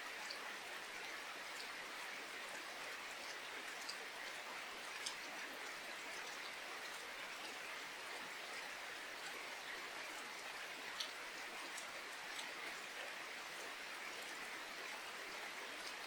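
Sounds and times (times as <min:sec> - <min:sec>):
raindrops ticking: 0:11.0 - 0:12.9.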